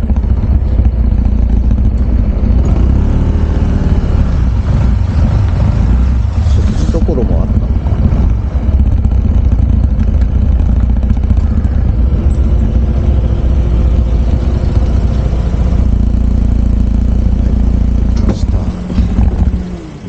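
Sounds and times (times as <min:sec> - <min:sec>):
motorcycle engine running: 0:00.0 - 0:20.0
wind rumble on microphone: 0:03.7 - 0:16.1, 0:18.2 - 0:19.9.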